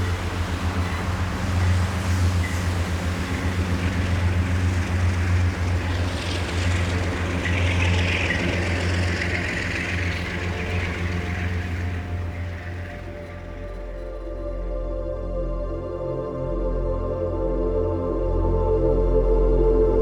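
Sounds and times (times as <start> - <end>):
rushing noise: 0.0 - 14.7
train engine hum: 0.0 - 14.9.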